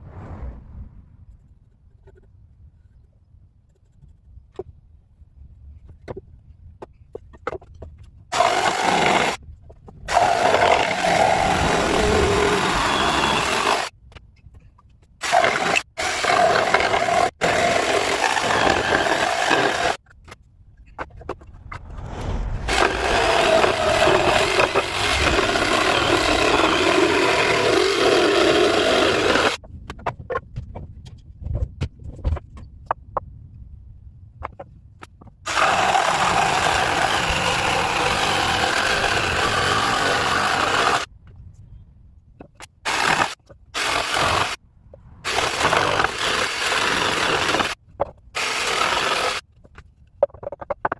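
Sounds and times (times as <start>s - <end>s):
power tool cutting wood: 8.3s - 9.4s, 10.1s - 13.9s, 15.2s - 20.0s, 22.6s - 29.6s, 35.5s - 41.1s, 42.9s - 44.6s, 45.3s - 47.8s, 48.4s - 49.4s.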